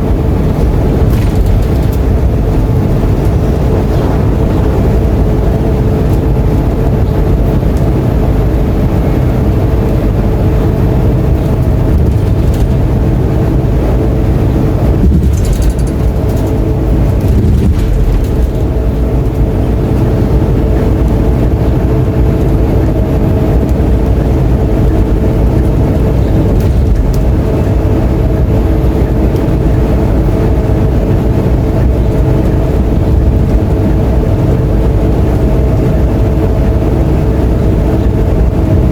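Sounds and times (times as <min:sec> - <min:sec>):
bus diesel engine rumbling: 0:00.0 - 0:38.9.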